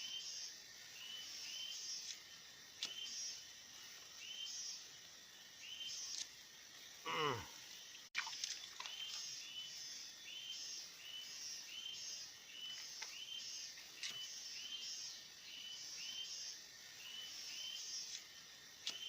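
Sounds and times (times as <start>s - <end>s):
pulsing insect buzz: 0.0s - 19.0s
sharp clicks: 18.0s - 19.0s.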